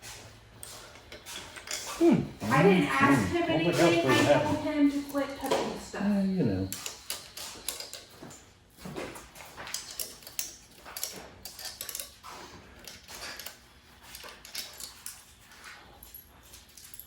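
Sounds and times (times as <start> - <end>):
tools and metal parts clicking: 0.6 - 2.0, 6.7 - 17.0.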